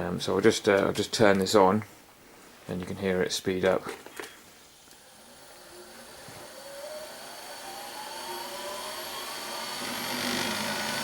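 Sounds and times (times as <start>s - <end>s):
motor spinning up whine: 4.7s - 11.0s.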